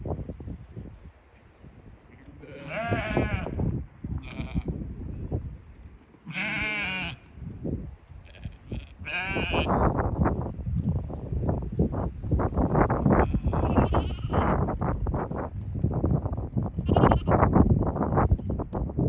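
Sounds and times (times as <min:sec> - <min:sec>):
sheep bleating: 0:02.1 - 0:03.6, 0:04.2 - 0:04.8, 0:06.2 - 0:07.2, 0:08.2 - 0:09.8, 0:13.2 - 0:14.5, 0:16.8 - 0:17.4.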